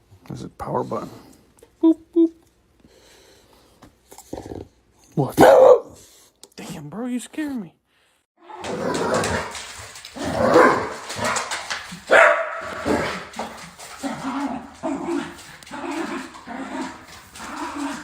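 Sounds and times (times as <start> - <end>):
dog barking: 5.4 - 6.0, 10.4 - 11.4, 12.1 - 13.3.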